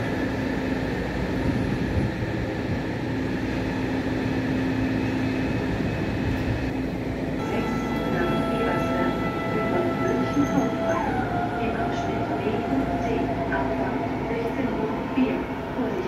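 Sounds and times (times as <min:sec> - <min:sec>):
electric train rumble: 0:00.0 - 0:16.0
steady whining tones: 0:05.4 - 0:16.0.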